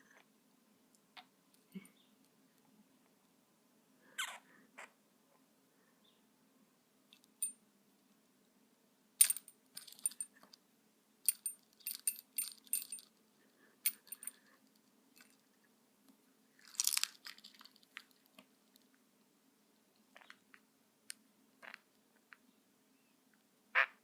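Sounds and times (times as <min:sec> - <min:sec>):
crunchy scrape: 0:16.6 - 0:18.4.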